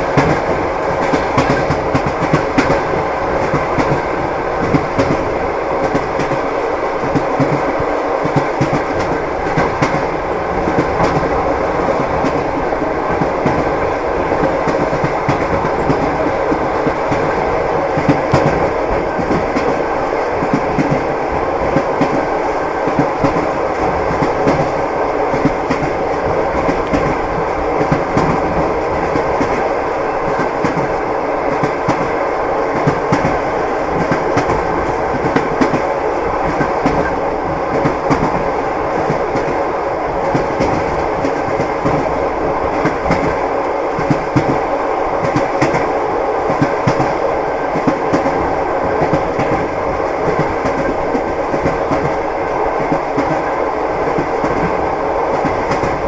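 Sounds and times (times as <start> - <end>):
train running rumble: 0.0 - 56.0.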